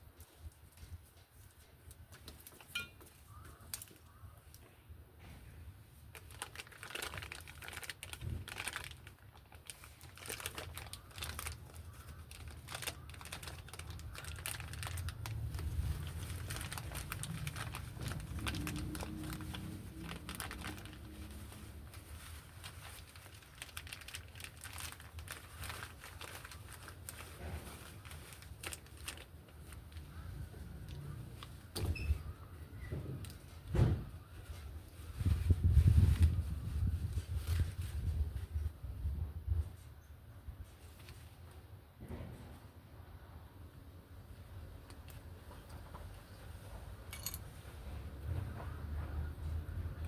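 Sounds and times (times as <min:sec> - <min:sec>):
hands handling parts crinkling: 0:06.0 - 0:31.6, 0:47.0 - 0:47.8.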